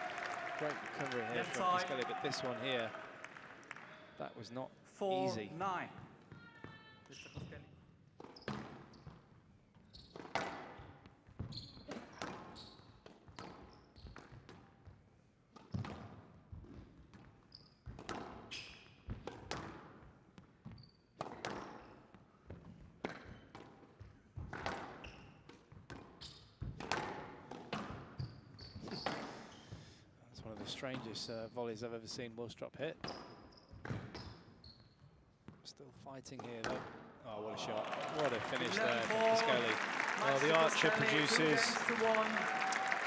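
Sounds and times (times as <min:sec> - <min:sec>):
shoes squeaking on court floor: 0:07.1 - 0:14.5, 0:24.9 - 0:26.6, 0:28.1 - 0:29.8, 0:33.0 - 0:35.6
squash ball hitting rackets and walls: 0:24.4 - 0:28.2.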